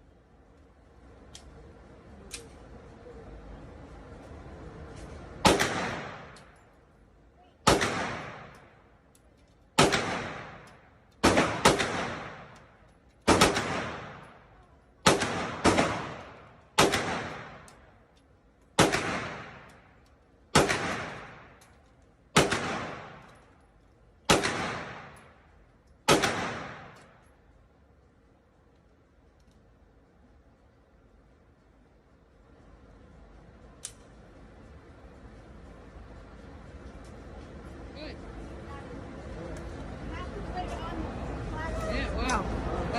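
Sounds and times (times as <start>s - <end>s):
gunshots with echo: 5.4s - 6.4s, 7.6s - 8.6s, 9.8s - 12.6s, 13.3s - 14.4s, 15.0s - 17.7s, 18.8s - 19.7s, 20.5s - 21.6s, 22.4s - 23.4s, 24.3s - 25.2s, 26.1s - 27.1s.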